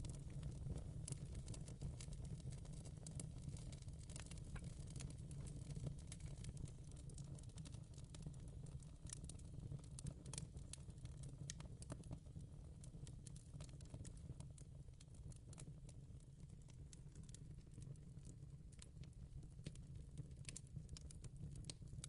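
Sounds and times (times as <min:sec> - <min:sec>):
fireplace crackling: 0:04.1 - 0:06.6, 0:16.6 - 0:21.8.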